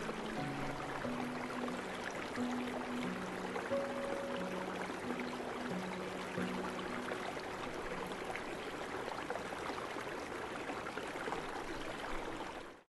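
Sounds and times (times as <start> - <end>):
faint musical tones: 0.0 - 9.3
mountain stream rushing: 0.0 - 12.8.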